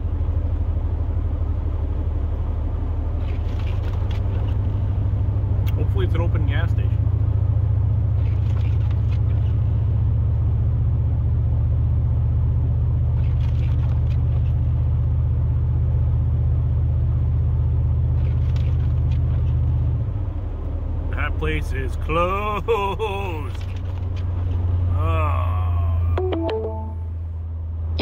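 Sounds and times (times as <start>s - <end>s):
pickup truck engine drone: 0.0s - 28.0s
tyres on road: 0.0s - 28.0s.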